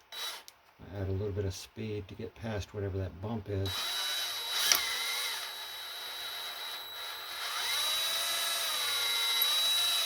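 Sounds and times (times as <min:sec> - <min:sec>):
electric drill whining: 0:00.0 - 0:00.5, 0:03.7 - 0:10.0
sharp click: 0:04.6 - 0:05.0.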